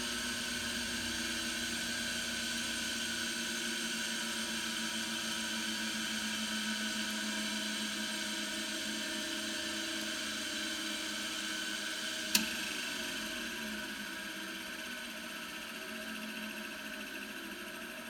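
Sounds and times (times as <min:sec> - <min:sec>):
sharp click: 0:12.3 - 0:12.6.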